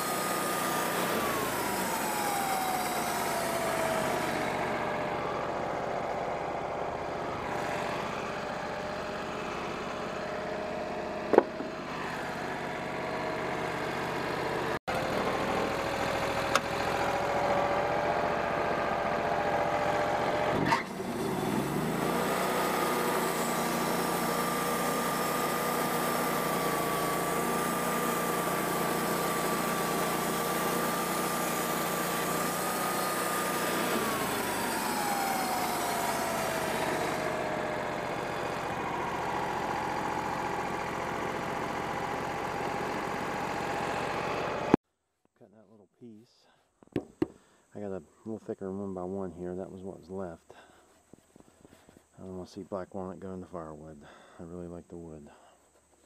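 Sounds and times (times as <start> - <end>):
sawmill sawing a log: 0.0 - 44.8.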